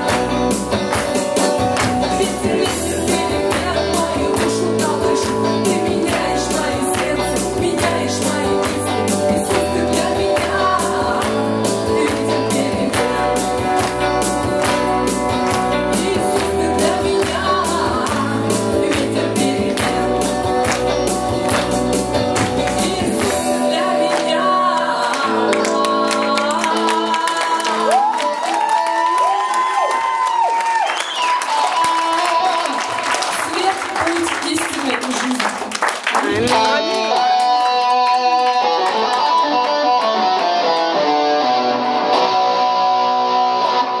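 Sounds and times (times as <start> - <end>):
percussion beat: 0.0 - 23.6, 33.6 - 37.8
strummed guitar: 0.0 - 27.2, 36.2 - 44.0
bass: 0.0 - 28.7
person singing: 0.0 - 29.4, 31.2 - 33.7, 36.2 - 44.0.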